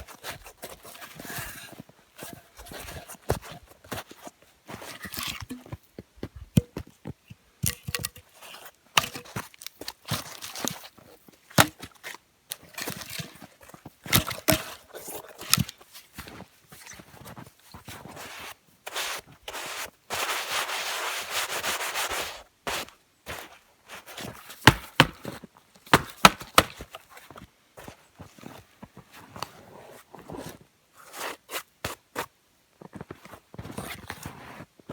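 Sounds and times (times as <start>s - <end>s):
knocks and clicks of handwork: 24.6s - 25.2s.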